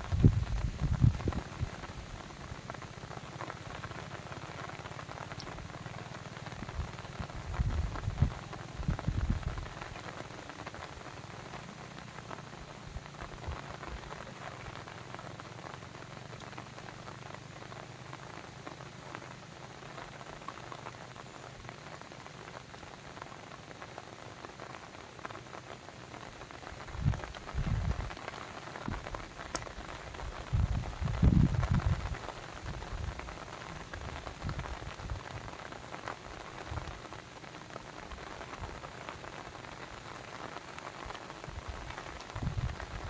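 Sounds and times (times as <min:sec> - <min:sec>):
water pattering: 0:00.1 - 0:23.3.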